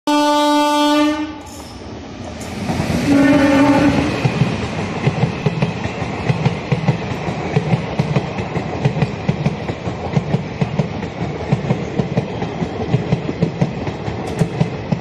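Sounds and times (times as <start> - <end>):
locomotive horn blasts: 0.1 - 1.5, 3.0 - 4.1
train wheels clattering on rails: 1.5 - 15.0.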